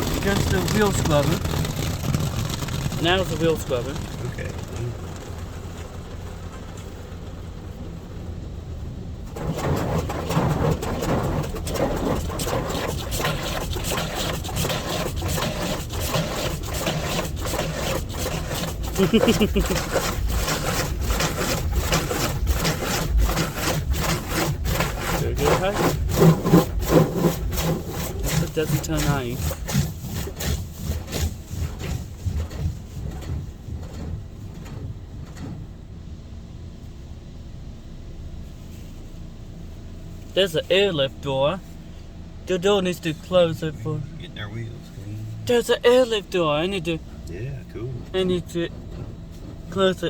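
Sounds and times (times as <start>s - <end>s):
brushes rubbing and knocking: 0.0s - 6.7s, 9.3s - 35.8s, 44.8s - 50.0s
wheel scrubbers swishing: 0.0s - 36.2s, 42.5s - 50.0s
car wash low rumbling: 0.0s - 50.0s
water spray rushing: 9.4s - 34.8s.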